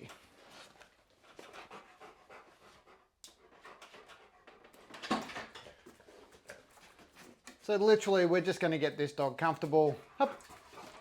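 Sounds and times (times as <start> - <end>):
dog panting: 0.2 - 7.6, 9.9 - 11.0.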